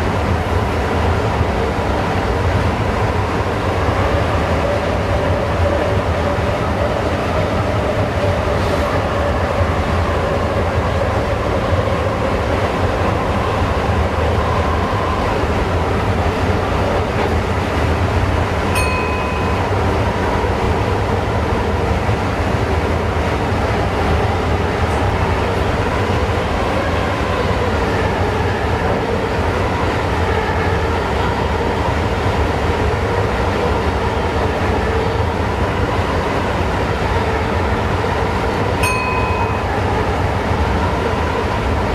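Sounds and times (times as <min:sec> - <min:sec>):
short high tone: 0:18.8 - 0:19.8, 0:38.8 - 0:39.8.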